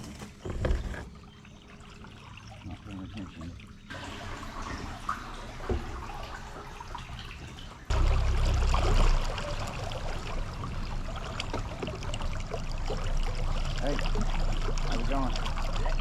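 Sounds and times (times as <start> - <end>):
water trickling and splashing: 0.0 - 16.0
water drips: 1.3 - 16.0
loud low rumble: 7.9 - 11.6.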